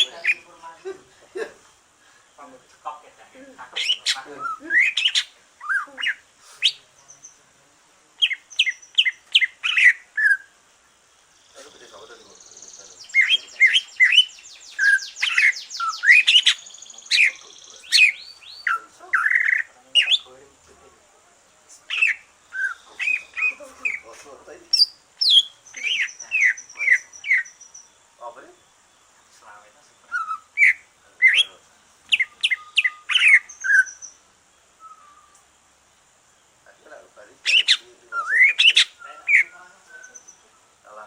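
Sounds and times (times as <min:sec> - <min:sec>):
bird singing whistled notes: 0:03.8 - 0:07.5, 0:08.2 - 0:10.6, 0:11.3 - 0:20.3, 0:21.9 - 0:29.3, 0:30.0 - 0:35.5, 0:37.4 - 0:40.7.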